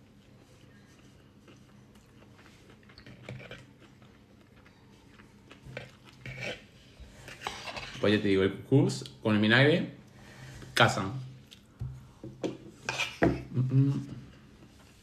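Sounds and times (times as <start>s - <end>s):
faint chewing: 0.0s - 8.0s.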